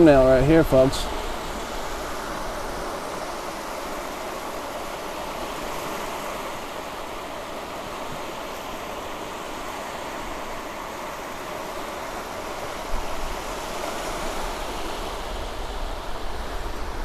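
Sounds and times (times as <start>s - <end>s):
gentle surf on beach: 0.0s - 17.0s.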